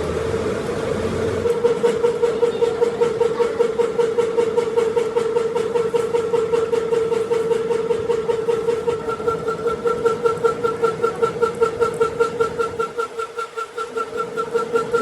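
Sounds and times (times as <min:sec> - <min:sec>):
workshop machine droning hum: 0:00.0 - 0:15.0.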